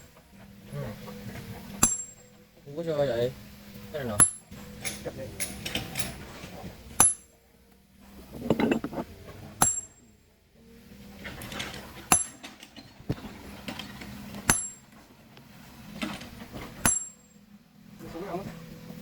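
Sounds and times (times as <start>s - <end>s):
hammer striking steel wedge: 1.8s - 2.2s, 4.2s - 4.5s, 7.0s - 7.3s, 9.6s - 10.0s, 12.1s - 12.4s, 14.4s - 14.8s, 16.8s - 17.3s
scraping on stone: 8.1s - 9.8s.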